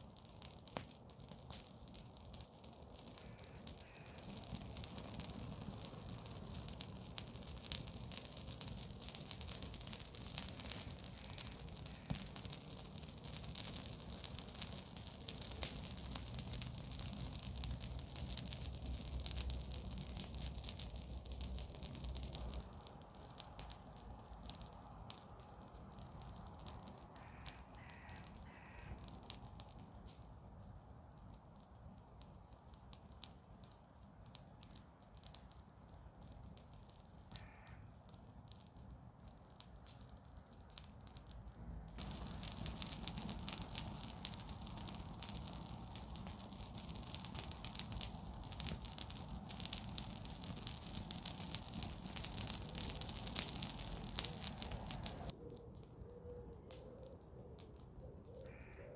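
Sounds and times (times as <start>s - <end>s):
bonfire crackling and popping: 0.0s - 58.9s
bird calling: 27.2s - 29.0s.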